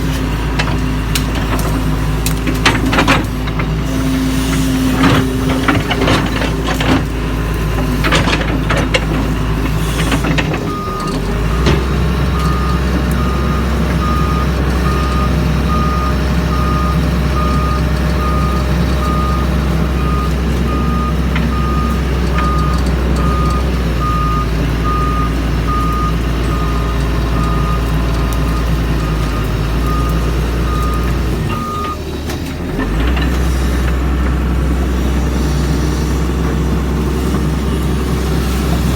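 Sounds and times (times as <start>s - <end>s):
excavator diesel engine running: 0.0s - 38.9s
travel alarm beeping: 12.3s - 27.9s.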